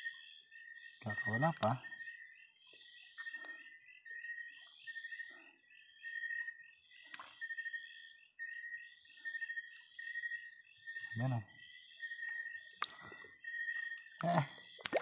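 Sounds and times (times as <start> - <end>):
night insects trilling: 0.0 - 15.0
soft water splashes: 14.3 - 15.0.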